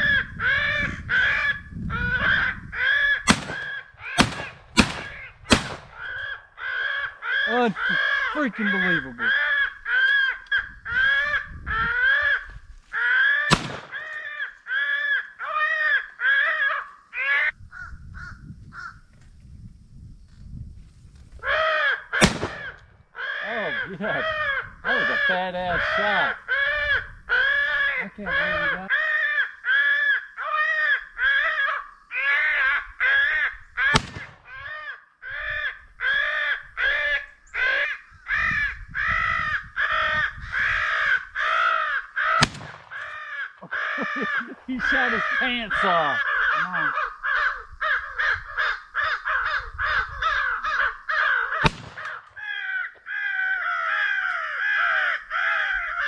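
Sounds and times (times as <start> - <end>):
crow cawing: 0.0 - 19.0, 21.4 - 56.0
shotgun shot: 3.3 - 6.0, 13.5 - 14.0, 22.2 - 22.8, 34.0 - 34.4, 42.4 - 43.1, 51.6 - 52.2.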